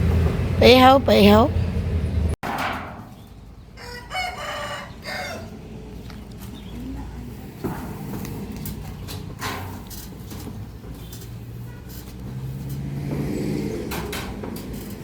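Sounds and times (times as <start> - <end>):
rooster crowing: 3.8 - 5.6.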